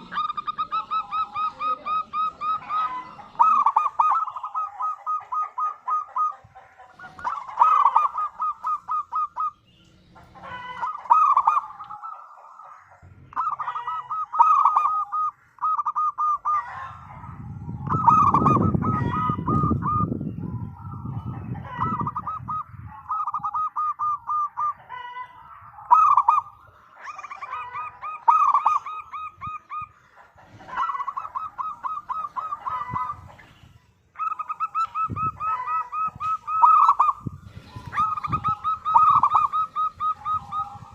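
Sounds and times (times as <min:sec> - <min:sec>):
doves cooing: 0:00.0 - 0:40.9.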